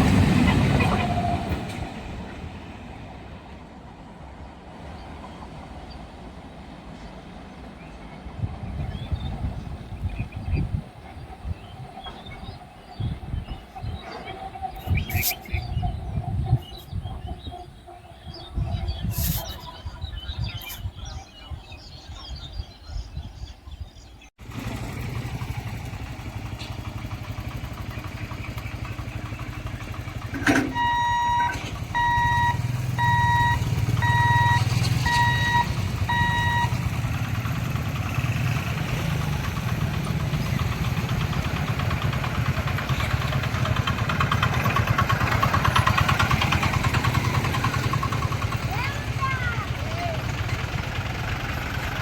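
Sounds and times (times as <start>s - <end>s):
faint bird chirps: 10.1s - 24.2s
vehicle engine running: 24.4s - 52.0s
electronic beeps: 30.8s - 36.8s.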